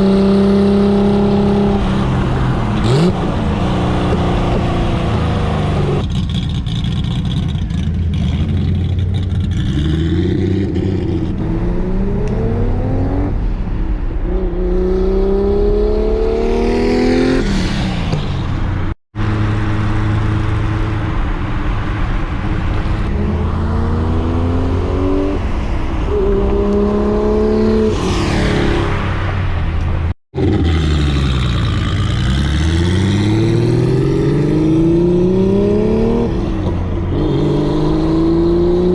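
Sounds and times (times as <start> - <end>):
car engine accelerating hard: 22.4 - 38.9
car passing by: 23.8 - 30.1.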